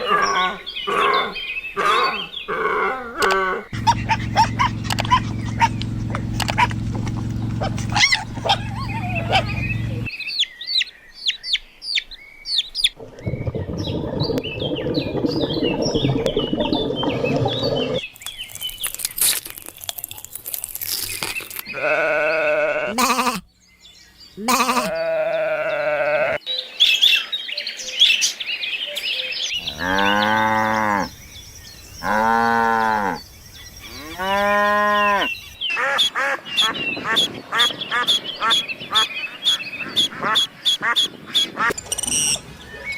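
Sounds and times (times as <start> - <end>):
small birds chirping: 3.7 - 42.9
rough low noise: 3.8 - 10.1, 13.0 - 18.0
cow mooing: 21.7 - 23.4, 24.5 - 26.4, 29.6 - 31.1, 32.0 - 33.2, 33.9 - 35.4
sheep bleating: 21.7 - 23.4, 24.4 - 26.4.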